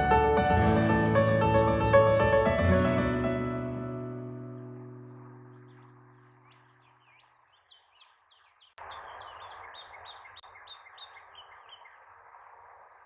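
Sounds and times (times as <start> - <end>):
outdoor background noise: 4.0 - 13.0
small bird chirping: 4.0 - 13.0.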